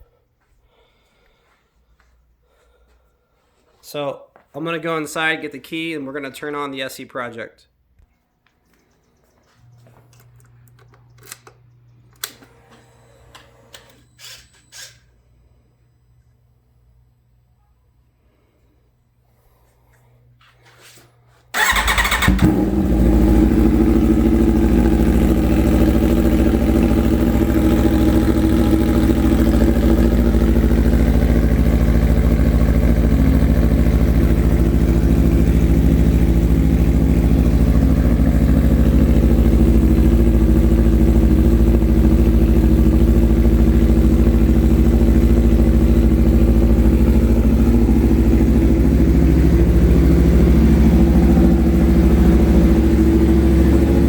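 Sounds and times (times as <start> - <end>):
motorcycle engine starter: 10.1 - 15.2, 21.5 - 24.4
motorcycle engine idling: 21.6 - 54.0.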